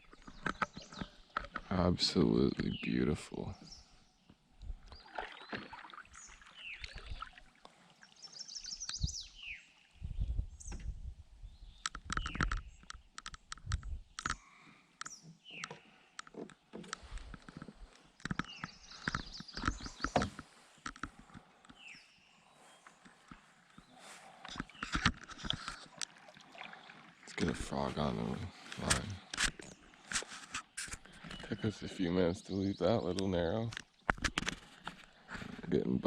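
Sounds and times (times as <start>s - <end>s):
paddle strokes: 4.9s - 9.1s, 11.9s - 31.8s, 33.7s - 36.0s
paddle knocking against canoe: 15.5s - 21.8s.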